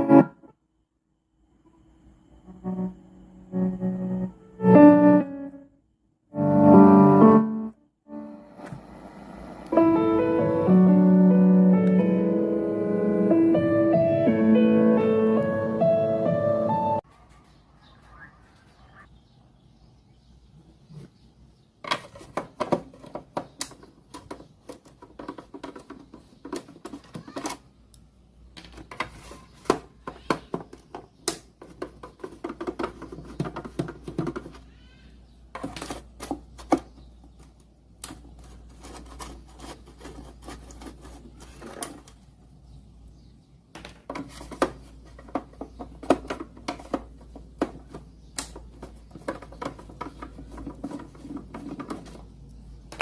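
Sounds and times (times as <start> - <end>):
hand tools clicking and tapping: 21.8 - 28.0, 28.6 - 34.7, 43.8 - 53.0.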